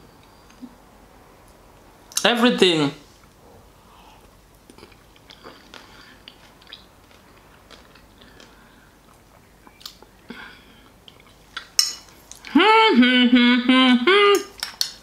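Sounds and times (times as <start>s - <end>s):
person chewing salad: 4.2s - 12.6s.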